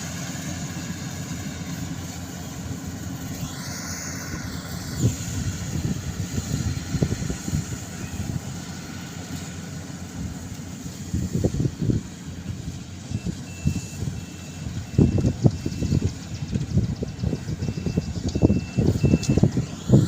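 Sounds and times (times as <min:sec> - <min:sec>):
heavy harvesting machinery running: 0:00.0 - 0:20.0
wind buffeting microphone: 0:04.3 - 0:08.6, 0:10.1 - 0:20.0.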